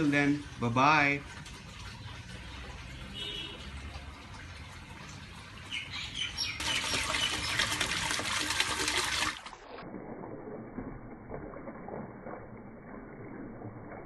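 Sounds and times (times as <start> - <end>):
fountain water splashing: 0.0 - 14.0
birds chirping: 5.6 - 7.8.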